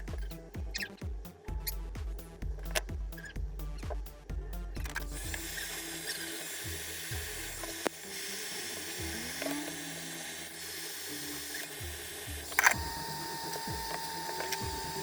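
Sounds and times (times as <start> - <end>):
small motorised tool running: 5.1 - 15.0.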